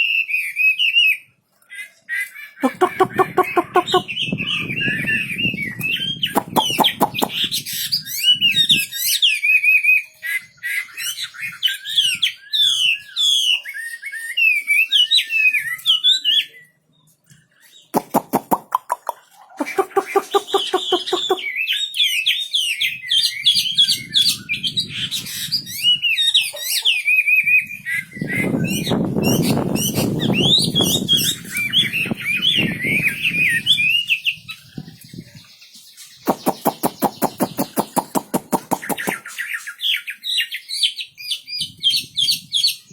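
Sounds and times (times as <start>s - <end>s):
harsh rattling bird calls: 1.7s - 16.1s, 17.4s - 42.9s
songbird warbling: 2.6s - 5.0s, 6.0s - 7.7s, 18.0s - 21.5s, 36.2s - 39.3s.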